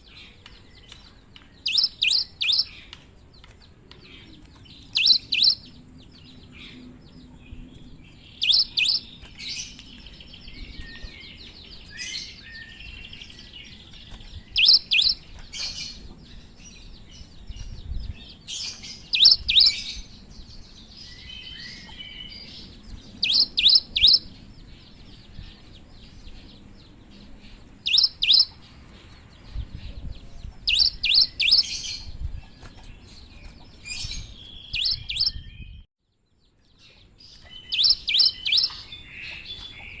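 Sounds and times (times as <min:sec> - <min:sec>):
bird twittering: 0:01.6 - 0:02.9, 0:04.7 - 0:06.8, 0:08.2 - 0:16.0, 0:18.6 - 0:20.0, 0:21.0 - 0:24.3, 0:27.8 - 0:28.6, 0:30.5 - 0:32.1, 0:33.8 - 0:35.8, 0:37.3 - 0:40.0.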